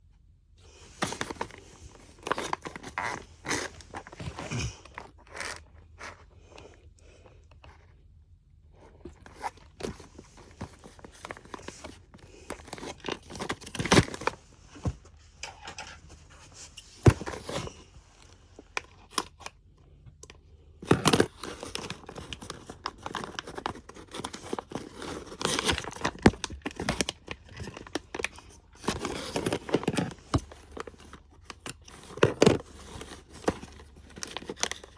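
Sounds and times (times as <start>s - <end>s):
packaging tearing and crinkling: 1.0s - 5.6s, 9.4s - 14.4s, 20.8s - 34.9s.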